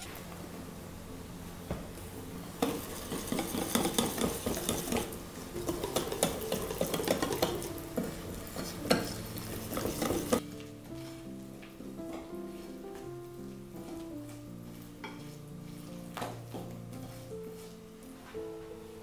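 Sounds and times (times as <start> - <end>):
utensil scraping in a pot: 2.5 - 10.4
metal clinking on cookware: 2.6 - 10.4.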